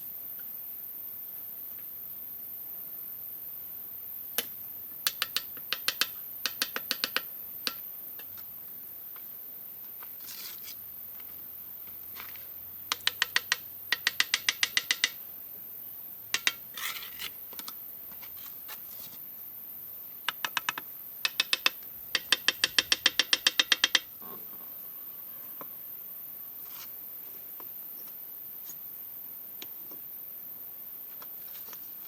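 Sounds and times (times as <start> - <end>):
short scrape: 10.2 - 10.8
quick metallic taps: 12.9 - 15.2.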